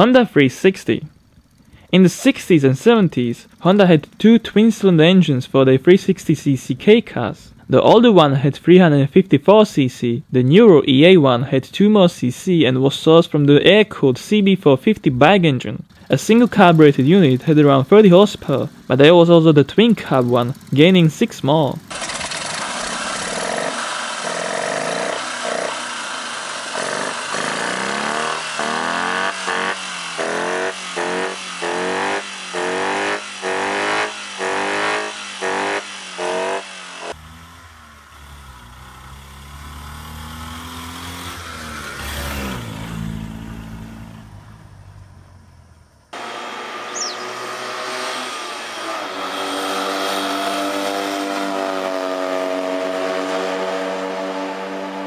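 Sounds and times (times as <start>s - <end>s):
car engine accelerating: 15.8s - 55.0s
car engine revving: 15.9s - 55.0s
small car driving past: 21.9s - 55.0s.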